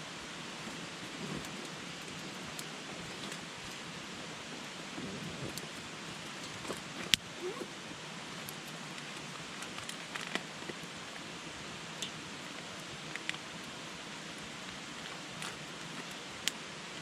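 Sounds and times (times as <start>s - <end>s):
campfire hissing: 0.0s - 17.0s
wood crackling and popping: 0.6s - 3.9s, 4.9s - 7.6s, 8.3s - 17.0s.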